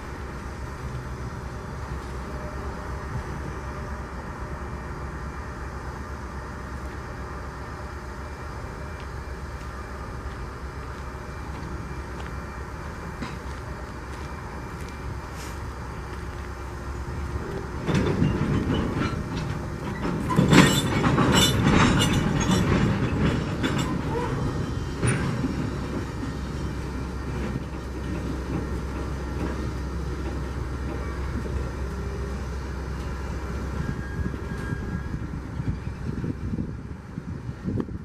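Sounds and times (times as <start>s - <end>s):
low train rumble: 0.0s - 38.0s
train wheels clacking over rail joints: 13.1s - 14.3s, 17.4s - 35.0s.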